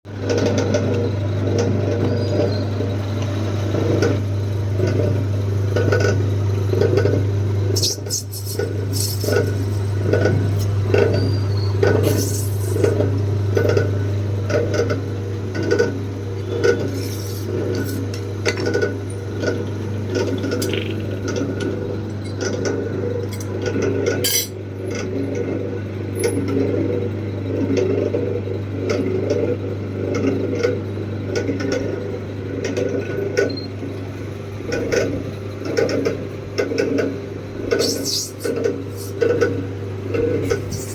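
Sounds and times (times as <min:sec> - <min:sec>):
lathe motor hum: 0:00.2 - 0:27.6.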